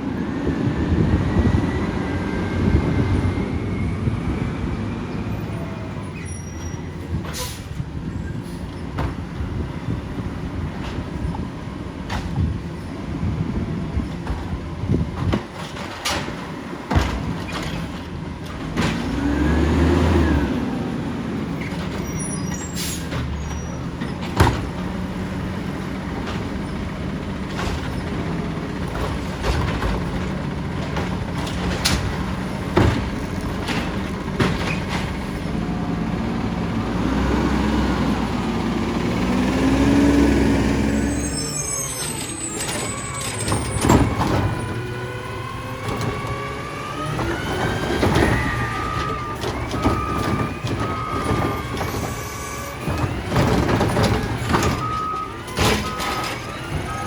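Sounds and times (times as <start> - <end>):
garbage truck diesel engine revving: 16.3 - 57.0
high squeal tones: 21.6 - 24.0, 39.9 - 57.0.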